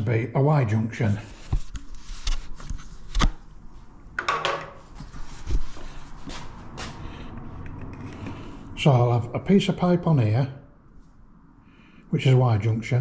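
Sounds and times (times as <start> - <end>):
plastic pipe knocks and clacks: 4.2 - 4.8.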